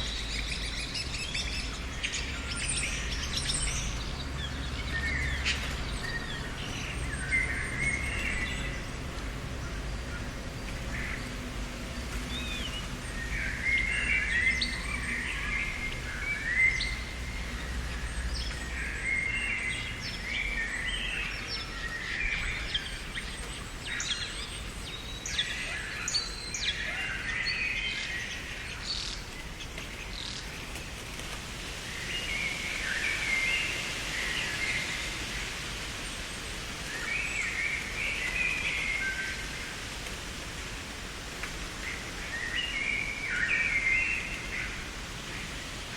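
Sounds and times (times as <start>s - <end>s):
outdoor ambience hiss: 0.0s - 45.9s
songbirds chirping: 0.0s - 45.9s.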